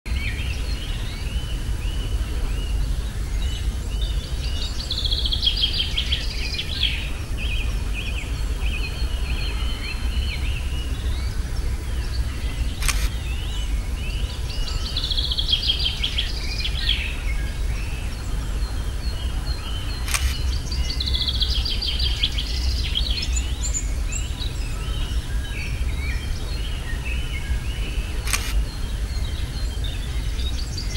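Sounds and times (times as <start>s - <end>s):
songbirds singing: 0.1s - 30.9s
steady low rumble: 0.1s - 30.9s
sharp clicks: 12.8s - 13.2s, 20.0s - 20.4s, 28.2s - 28.6s.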